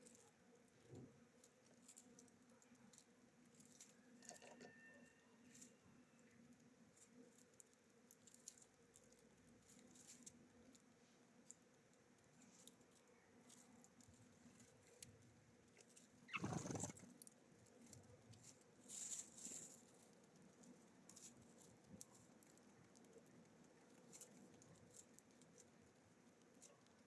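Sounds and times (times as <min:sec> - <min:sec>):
birds pecking and cracking seeds: 0:00.0 - 0:04.7, 0:05.4 - 0:27.0
rustle: 0:00.0 - 0:27.0.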